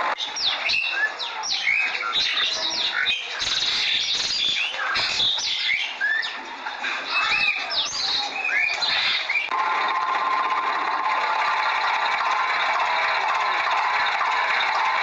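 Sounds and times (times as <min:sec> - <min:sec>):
small birds chirping: 0:00.1 - 0:09.6.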